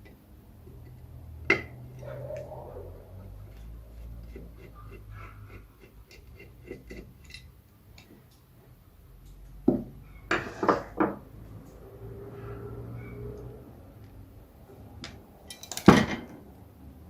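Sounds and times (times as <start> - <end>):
metal parts clinking together: 15.4 - 16.1.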